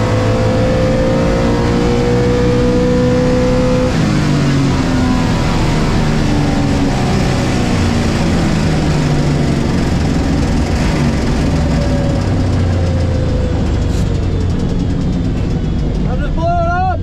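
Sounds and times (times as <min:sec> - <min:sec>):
car engine running loudly: 0:00.0 - 0:17.0
wind and road noise: 0:00.0 - 0:17.0.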